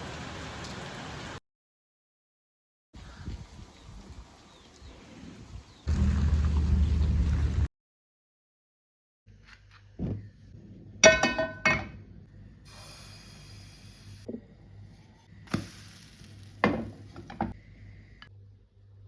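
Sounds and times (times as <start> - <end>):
low steady hum: 5.9 - 7.7
kitchenware knocks and clinks: 11.0 - 12.0.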